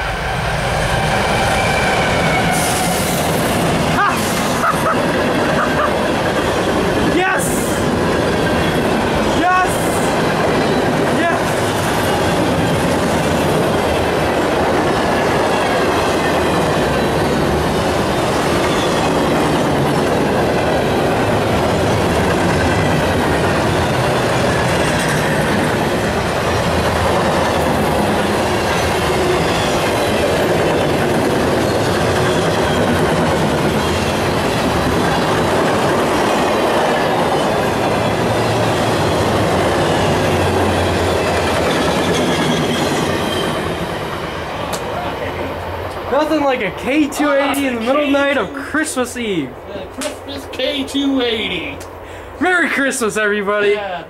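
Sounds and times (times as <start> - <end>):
train wheels rumbling on rail: 0.0 - 54.0
high wheel squeal: 1.1 - 3.3, 8.2 - 9.4, 18.1 - 19.4, 31.6 - 33.1, 37.0 - 44.4.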